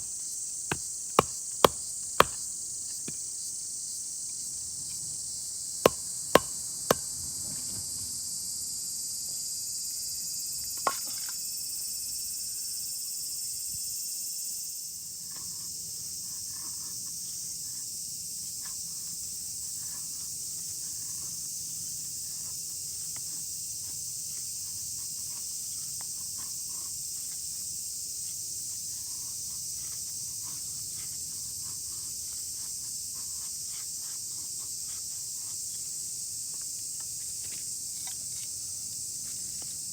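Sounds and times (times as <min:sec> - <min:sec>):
sharp knocks: 0:05.9 - 0:07.0.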